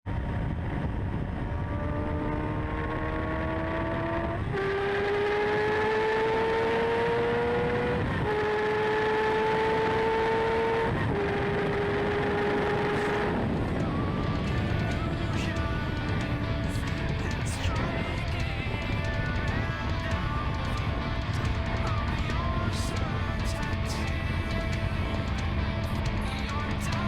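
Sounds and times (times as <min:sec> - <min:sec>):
motorcycle engine accelerating: 0:00.2 - 0:27.0
wind rush: 0:10.8 - 0:23.5.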